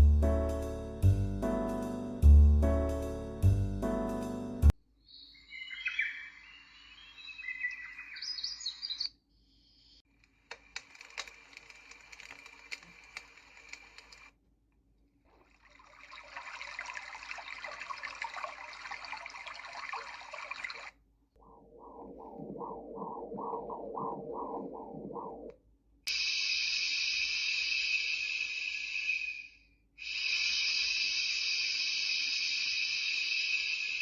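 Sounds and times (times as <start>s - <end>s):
birdsong with chirps: 5.0s - 10.0s
hiss with scattered clicks: 10.2s - 14.3s, 26.1s - 34.0s.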